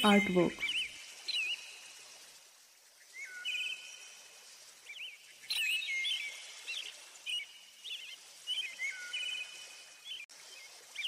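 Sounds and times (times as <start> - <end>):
songbirds chirping and trilling: 0.0 - 1.8, 4.8 - 10.3.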